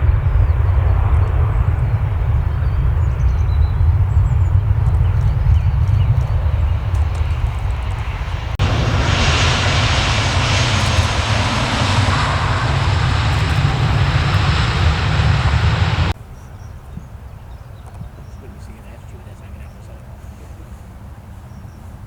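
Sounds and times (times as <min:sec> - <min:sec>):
airliner engine noise: 0:00.0 - 0:16.2
heavy low rumble: 0:00.0 - 0:16.2.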